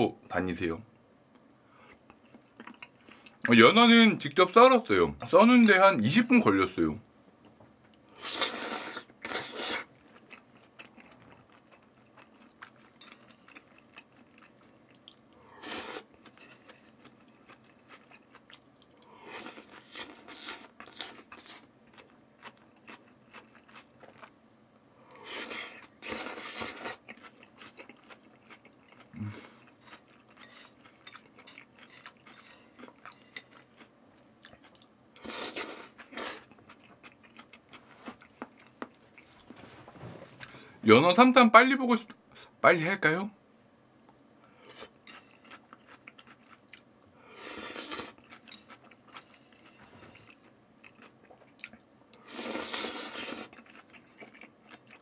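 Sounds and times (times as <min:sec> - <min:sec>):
noisy bursts of eating: 0:01.7 - 0:04.3, 0:07.4 - 0:39.5, 0:44.3 - 0:55.0
chewing with wet clicks: 0:01.9 - 0:03.5, 0:10.0 - 0:15.4, 0:16.1 - 0:19.1, 0:20.3 - 0:24.4, 0:26.8 - 0:35.3, 0:36.0 - 0:39.0, 0:45.1 - 0:46.9, 0:47.9 - 0:52.3, 0:53.4 - 0:55.0.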